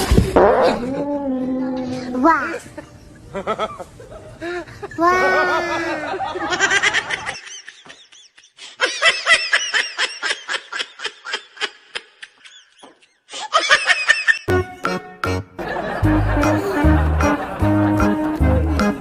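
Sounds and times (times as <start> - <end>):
high-pitched laughter: 4.9 - 14.5.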